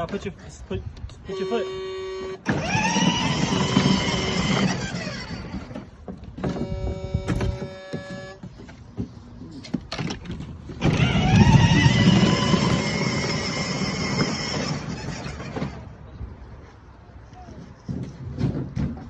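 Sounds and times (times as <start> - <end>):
electric toy motors whining: 1.3 - 8.4, 10.8 - 15.8.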